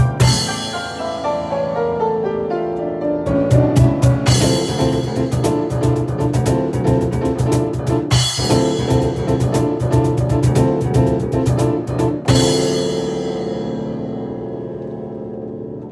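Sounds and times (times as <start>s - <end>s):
hand drum strikes: 0.0s - 0.8s, 3.3s - 13.1s
rapid piano chords: 0.0s - 15.9s.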